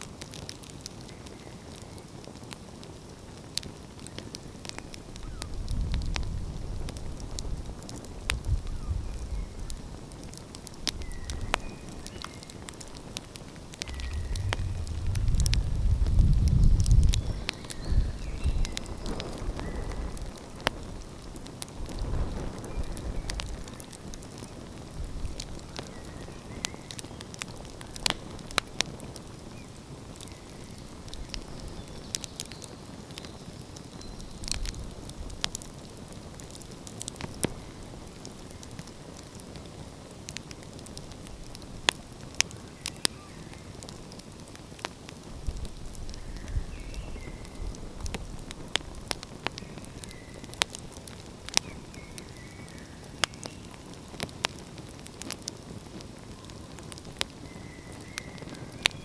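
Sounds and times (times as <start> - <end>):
wood fire crackling and popping: 0.0 - 59.0
low rumble: 13.8 - 17.5.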